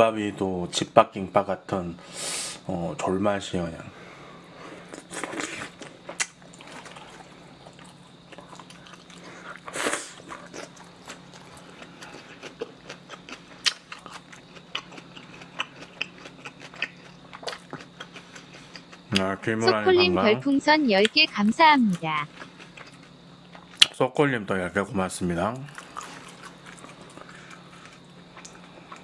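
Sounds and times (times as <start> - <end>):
chewing and lip-smacking: 4.9 - 19.3, 21.9 - 23.9, 25.6 - 29.0.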